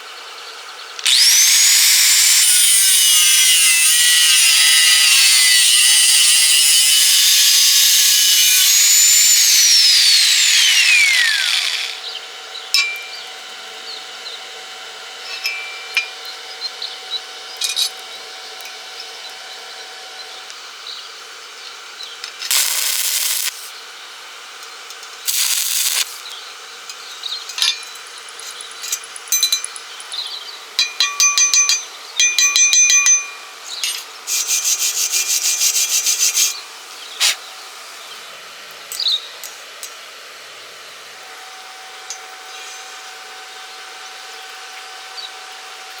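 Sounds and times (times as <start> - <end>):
tools scraping metal: 26.9 - 31.8, 33.7 - 36.6.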